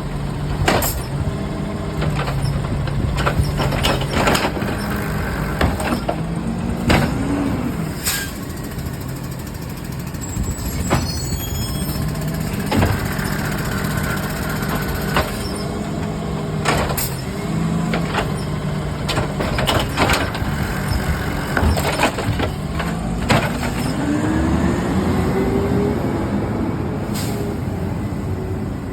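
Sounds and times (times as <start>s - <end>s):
garbage truck engine running: 0.0s - 28.9s
sharp knocks and bangs: 2.0s - 7.4s, 12.2s - 15.6s, 16.5s - 24.1s.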